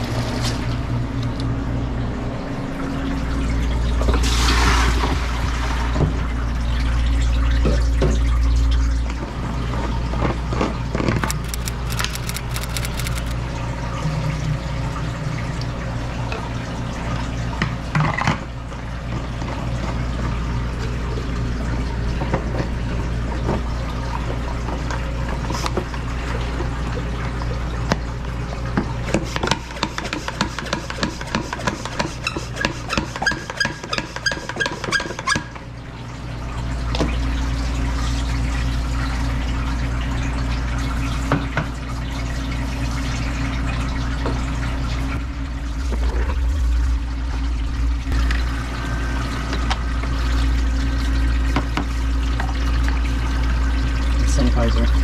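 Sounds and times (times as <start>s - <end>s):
tap water running into container: 36.5s - 55.0s
steady low hum: 44.6s - 55.0s.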